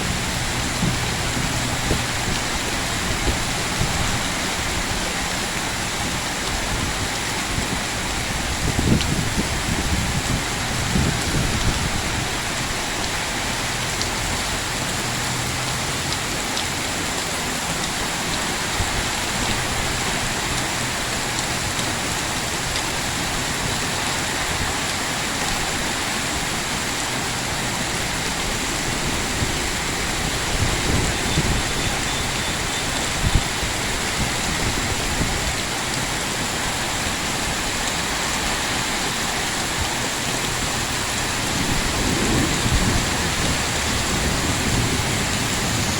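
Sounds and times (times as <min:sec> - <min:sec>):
heavy rain pouring: 0:00.0 - 0:45.9
low rumbles: 0:37.2 - 0:45.9.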